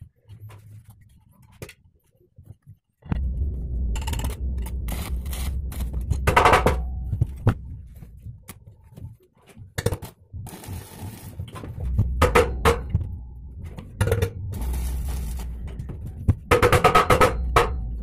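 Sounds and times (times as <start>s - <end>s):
steady low hum: 3.0s - 18.0s
metal parts knocking and scraping: 3.9s - 18.0s.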